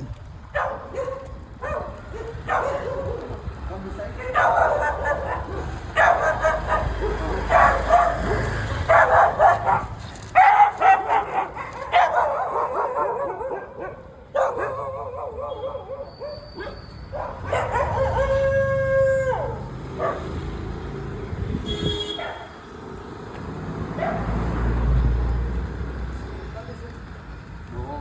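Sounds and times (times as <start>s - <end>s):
dog barking: 0.5s - 3.4s, 4.2s - 20.5s, 22.1s - 22.6s, 23.9s - 24.4s
dog howling: 17.6s - 19.7s.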